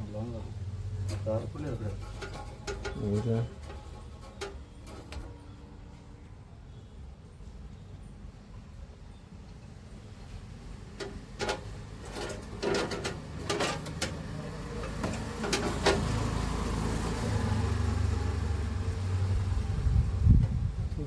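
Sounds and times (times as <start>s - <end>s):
sharp clicks and knocks: 1.0s - 5.3s, 11.0s - 16.2s.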